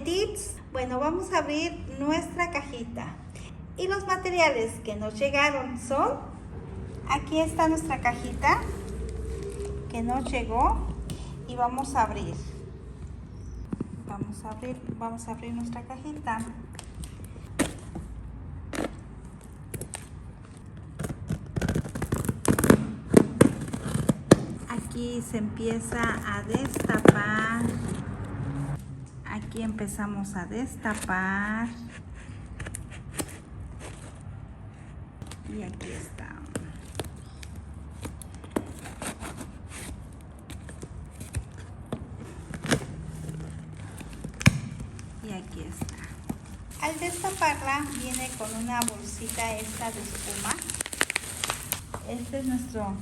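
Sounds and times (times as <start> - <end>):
packing rustle: 45.9 - 52.9.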